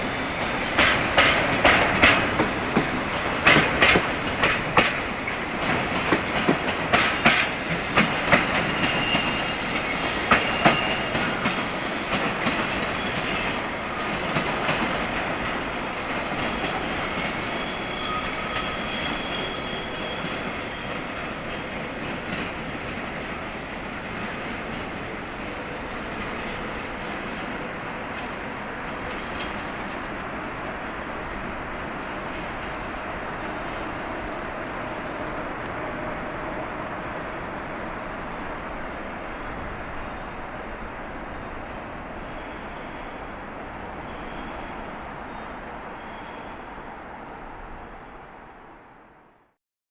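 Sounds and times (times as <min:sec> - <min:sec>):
train wheels clacking over rail joints: 0:00.0 - 0:30.6
train rumble: 0:00.0 - 0:49.4
faint wheel squeal: 0:15.9 - 0:21.0, 0:23.4 - 0:25.0, 0:44.0 - 0:47.6.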